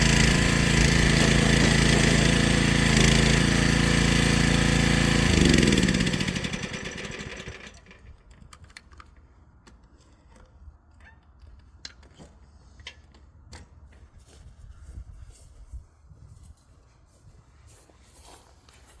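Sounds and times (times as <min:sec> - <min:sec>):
small engine winding down: 0:00.0 - 0:07.9.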